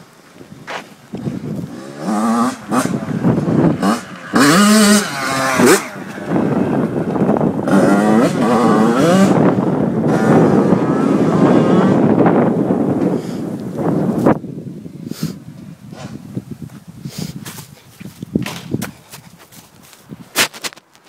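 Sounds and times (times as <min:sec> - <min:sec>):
dirt bike engine revving: 0:01.2 - 0:14.2.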